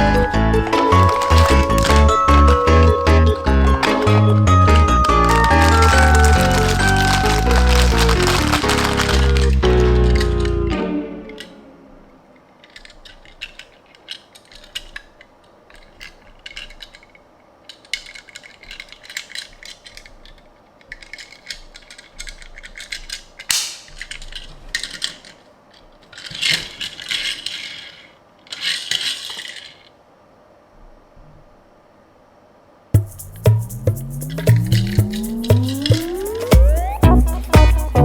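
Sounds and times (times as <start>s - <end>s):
quick light clicks and rattles: 0.6s - 2.4s, 12.6s - 29.9s
scraping rustles of packaging: 0.6s - 10.6s.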